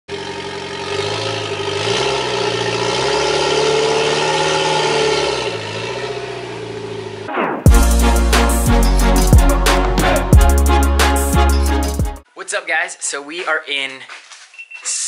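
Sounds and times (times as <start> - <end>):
car engine revving: 0.1 - 10.3.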